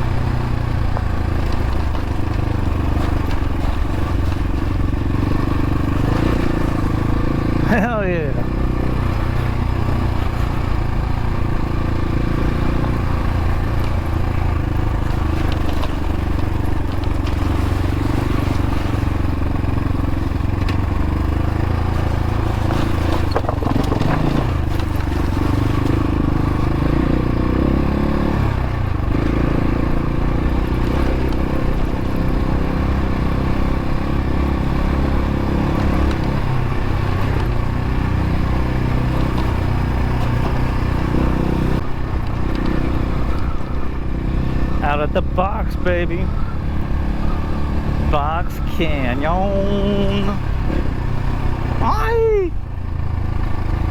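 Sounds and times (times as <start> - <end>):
dirt bike engine running: 0.0 - 53.9
clattering and scraping: 22.0 - 25.9.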